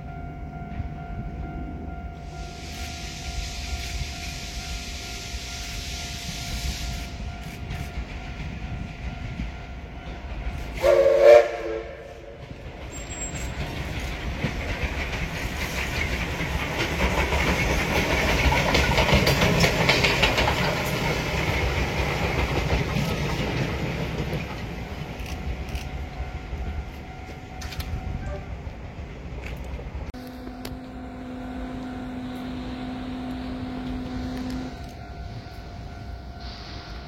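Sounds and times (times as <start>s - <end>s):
train wheels clicking on rails: 2.2s - 28.3s
train horn: 10.6s - 12.5s, 27.7s - 28.8s, 30.2s - 36.8s.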